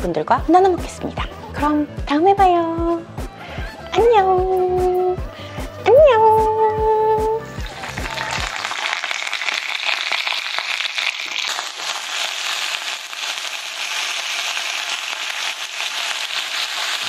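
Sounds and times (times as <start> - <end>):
chicken sizzling in a frying pan: 7.6 - 17.0.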